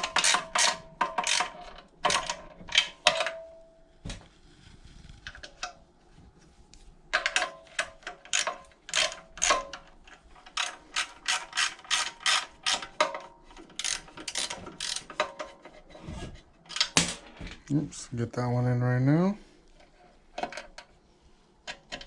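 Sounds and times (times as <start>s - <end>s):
ratchet wrench clicking: 10.5s - 13.0s, 13.8s - 15.2s.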